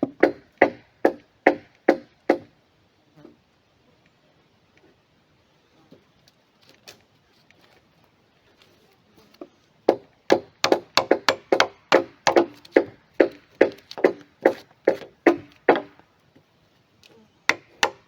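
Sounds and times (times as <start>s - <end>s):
tool striking wood: 0.0s - 2.5s, 9.9s - 16.0s, 17.5s - 18.0s.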